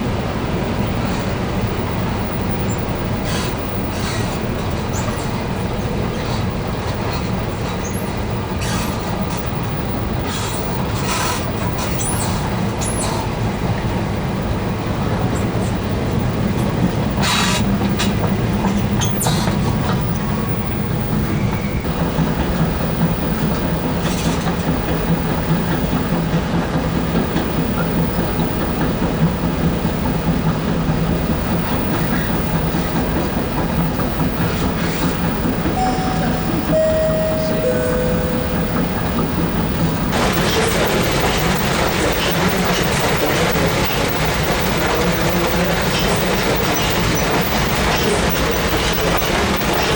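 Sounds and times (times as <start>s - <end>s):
escalator humming and rumbling: 0.0s - 49.9s
escalator clicks and rattles: 32.4s - 49.9s.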